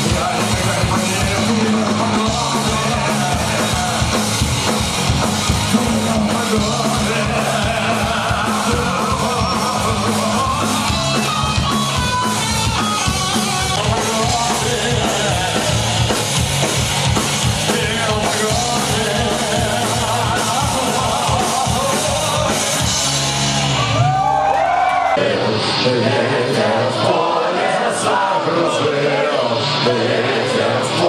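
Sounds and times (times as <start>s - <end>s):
drum kit: 0.0s - 24.5s
bass guitar: 0.0s - 27.4s
punk rock band playing live: 0.0s - 31.0s.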